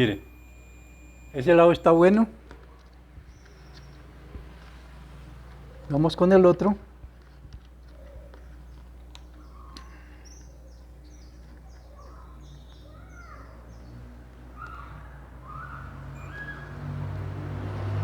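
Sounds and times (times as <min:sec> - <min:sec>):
steady low hum: 0:00.0 - 0:13.6
birds chirping: 0:00.0 - 0:18.0.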